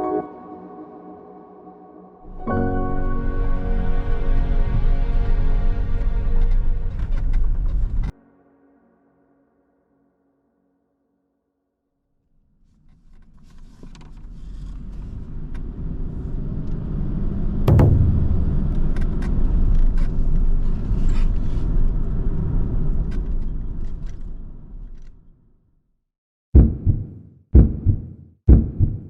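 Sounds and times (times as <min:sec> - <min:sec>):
low rumble: 0:17.7 - 0:20.0.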